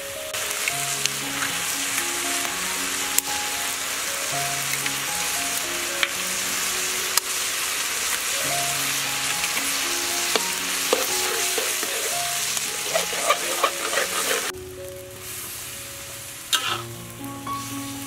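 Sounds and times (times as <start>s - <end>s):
food sizzling in a wok: 0.0s - 18.0s
metal spatula scraping a pan: 9.4s - 14.5s.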